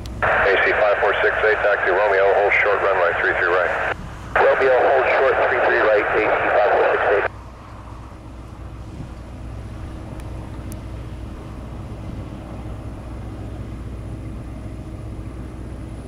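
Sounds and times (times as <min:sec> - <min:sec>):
distant jet engine rumble: 0:00.0 - 0:16.0.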